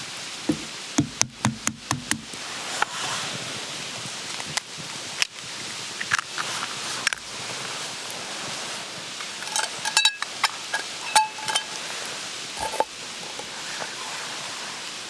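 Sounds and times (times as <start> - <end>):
steady hiss: 0.0 - 15.0
sharp knocks of hard objects: 0.5 - 2.4.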